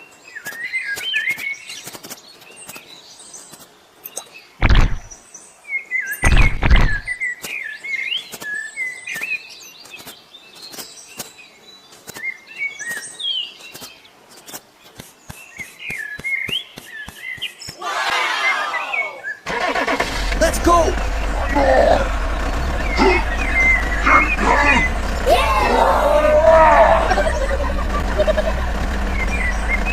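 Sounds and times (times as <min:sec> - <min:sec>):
small birds chirping: 0:00.0 - 0:29.9
heavy thumps: 0:04.6 - 0:05.1, 0:06.2 - 0:07.1.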